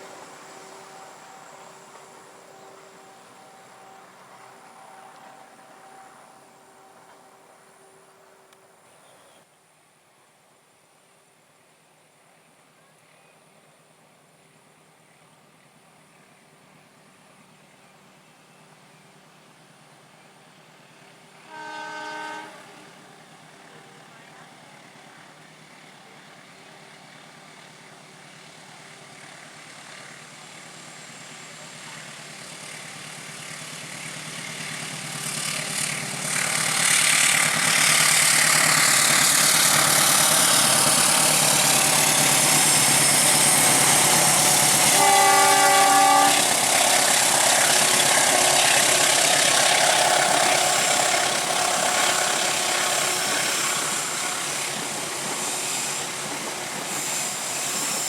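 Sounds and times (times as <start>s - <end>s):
train passing: 0.0s - 9.1s, 15.4s - 58.0s
train horn blast: 21.4s - 23.2s, 43.4s - 49.2s.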